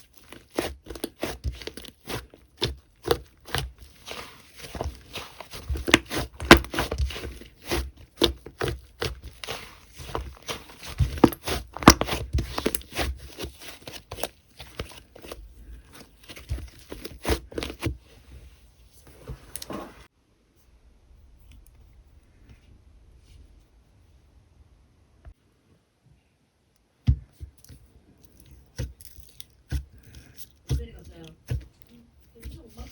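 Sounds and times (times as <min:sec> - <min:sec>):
slime crackling and popping: 0:00.0 - 0:15.4.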